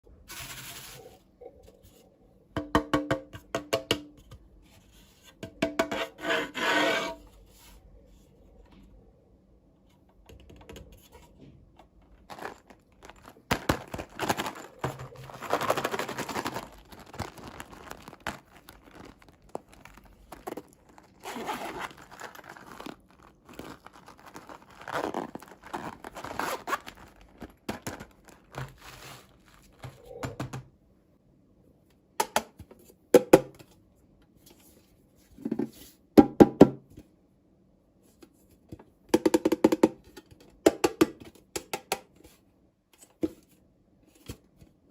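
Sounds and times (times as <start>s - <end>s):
packaging tearing and crinkling: 12.3s - 29.8s.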